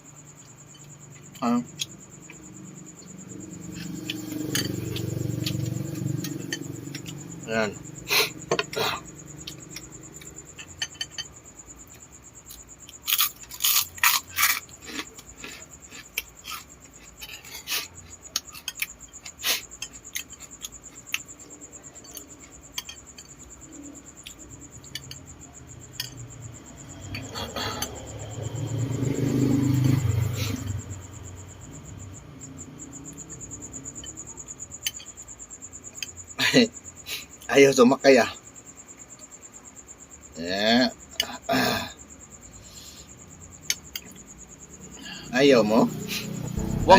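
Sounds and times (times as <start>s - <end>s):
low muffled sound: 46.6s - 46.9s.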